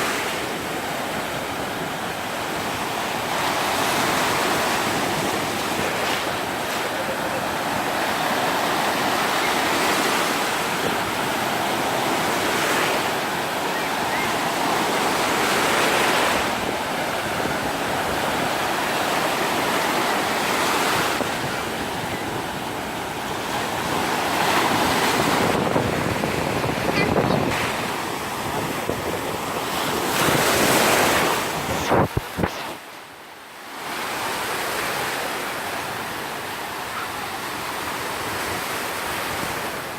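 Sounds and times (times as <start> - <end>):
surf breaking on beach: 0.0 - 32.9
wind on microphone: 23.6 - 32.9.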